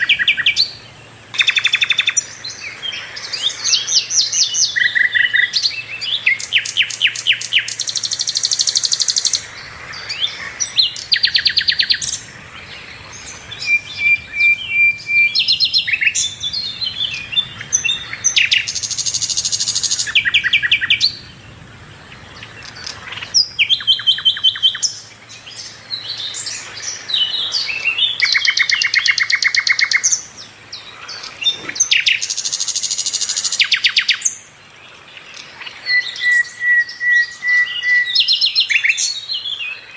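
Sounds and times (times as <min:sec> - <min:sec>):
bird singing trills and whistles: 0:00.0 - 0:34.5, 0:35.3 - 0:39.9.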